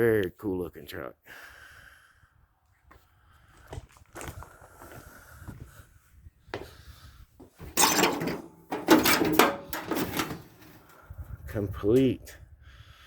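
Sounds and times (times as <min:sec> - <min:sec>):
sheet metal clattering and scraping: 0:07.4 - 0:11.0.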